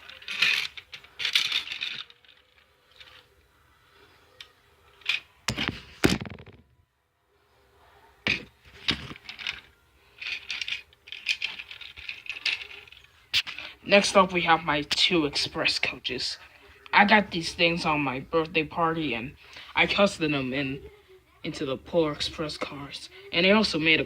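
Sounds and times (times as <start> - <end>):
plastic toy trains clicking and clattering: 0.0 - 3.5, 4.4 - 5.3, 8.3 - 17.1.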